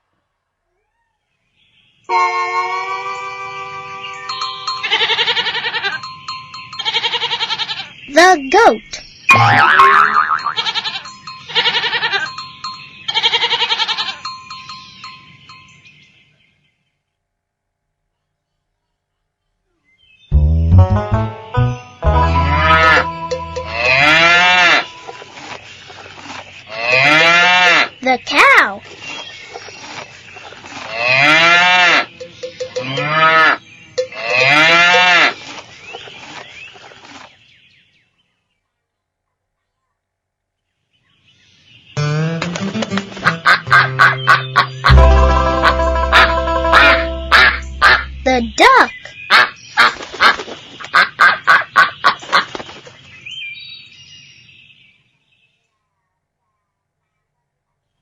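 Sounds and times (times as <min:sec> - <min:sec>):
goat bleating: 0:04.8 - 0:06.0, 0:06.8 - 0:07.9, 0:10.6 - 0:12.3, 0:13.1 - 0:14.2
cow mooing: 0:23.6 - 0:24.9.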